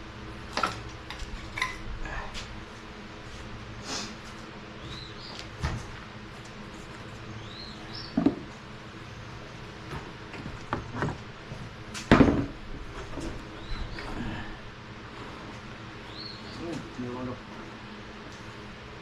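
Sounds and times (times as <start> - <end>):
bird chirps: 7.4 - 8.2, 13.6 - 14.1, 16.1 - 16.7.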